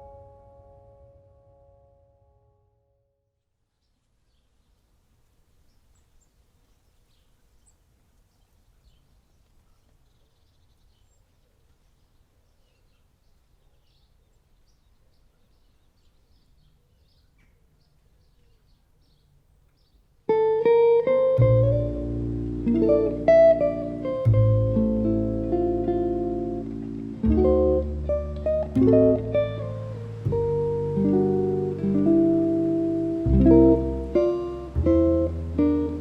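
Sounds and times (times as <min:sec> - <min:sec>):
plucked guitar music: 0:00.0 - 0:02.9, 0:20.3 - 0:36.0.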